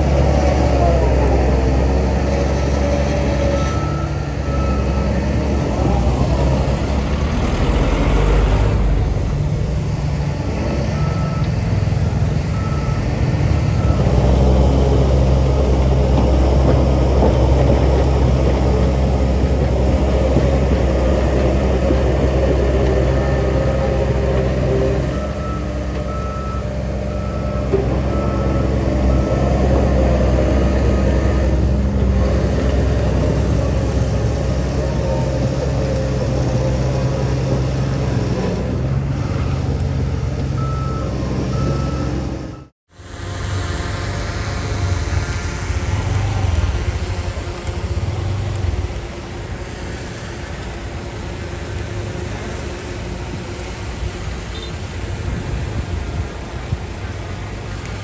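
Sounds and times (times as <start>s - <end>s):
reversing alarm beeping: 0.0s - 9.2s, 10.6s - 15.1s, 22.2s - 32.3s, 37.9s - 42.7s
heavy diesel machinery running: 0.0s - 58.0s.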